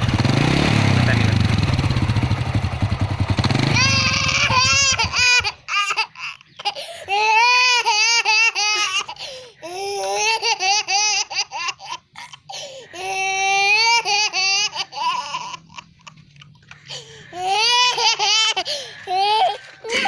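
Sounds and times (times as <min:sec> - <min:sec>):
small child laughing and babbling: 0:03.7 - 0:16.6, 0:17.4 - 0:20.0.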